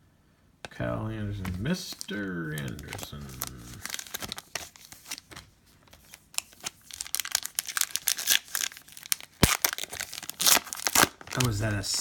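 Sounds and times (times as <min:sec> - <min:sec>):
wrapper tearing and crinkling: 0:01.4 - 0:11.8.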